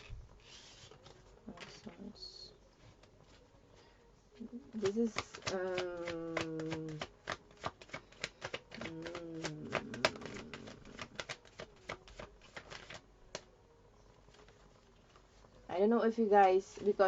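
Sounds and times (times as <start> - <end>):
cards being shuffled: 0.0 - 2.0, 4.7 - 13.5
woman humming: 8.8 - 11.2.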